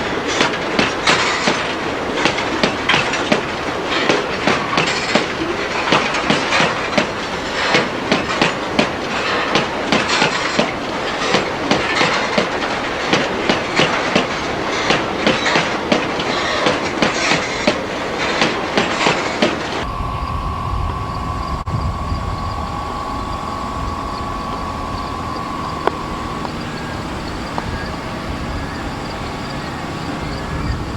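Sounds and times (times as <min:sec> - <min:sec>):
train wheels clattering over rail joints: 0:00.0 - 0:19.9, 0:21.4 - 0:30.9
high steady hum: 0:18.9 - 0:30.9
low rumble: 0:19.8 - 0:30.9.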